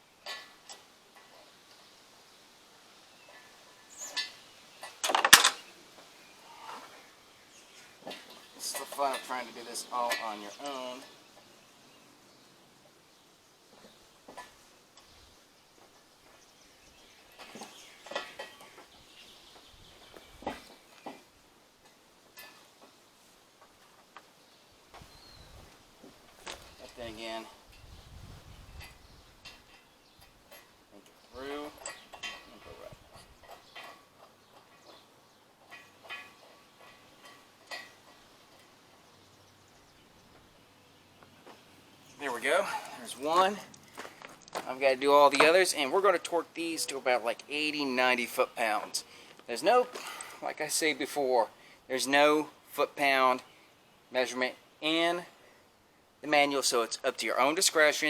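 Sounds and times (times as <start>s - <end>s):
steel parts knocking and clanking: 4.1s - 5.7s, 17.3s - 18.9s, 19.5s - 23.0s, 28.8s - 39.1s.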